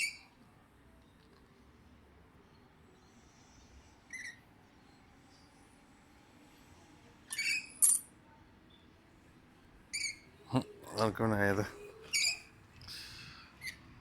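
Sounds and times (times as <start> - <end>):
parrot squeaky calls: 0.0 - 0.2, 4.1 - 4.4, 7.3 - 8.0, 9.9 - 10.3, 12.1 - 12.5.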